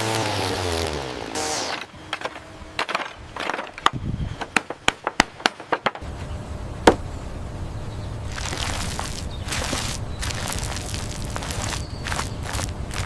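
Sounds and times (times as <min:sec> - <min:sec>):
sharp knocks: 0:06.8 - 0:07.0.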